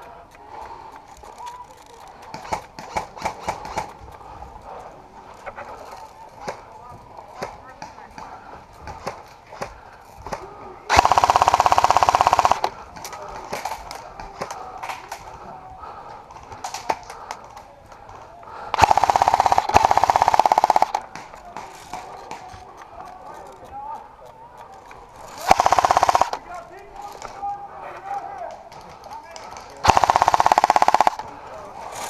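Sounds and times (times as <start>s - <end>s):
airsoft rifle full-auto bursts: 10.9s - 12.8s, 18.7s - 21.2s, 25.4s - 26.4s, 29.8s - 31.3s.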